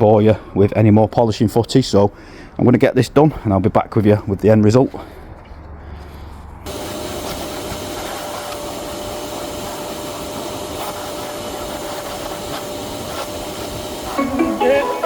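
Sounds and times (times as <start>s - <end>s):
electric polisher whirring: 6.7s - 15.0s.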